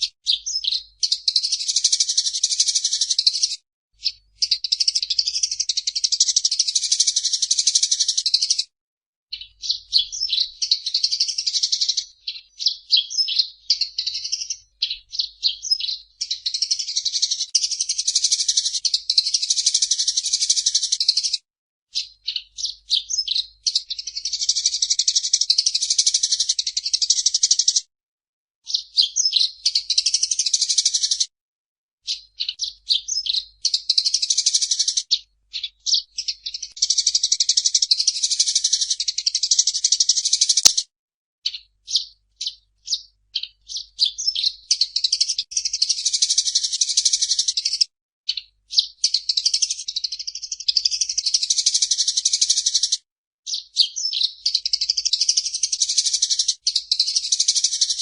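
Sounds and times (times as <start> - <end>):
sparrow chattering song: 0.0 - 8.7, 9.3 - 27.8, 28.6 - 31.2, 32.0 - 40.8, 41.4 - 58.0
sharp click: 40.6 - 40.8.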